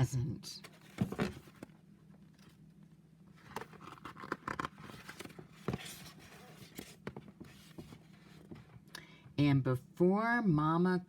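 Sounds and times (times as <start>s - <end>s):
faint paper rustling: 3.3s - 8.8s.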